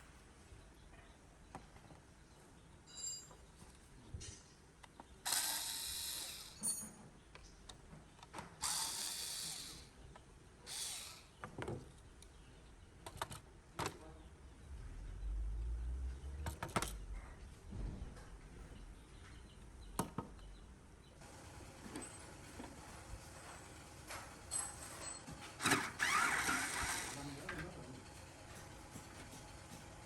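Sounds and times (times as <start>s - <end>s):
tool rasping bursts: 5.3s - 6.7s, 8.6s - 9.9s, 10.6s - 11.4s, 25.6s - 27.5s.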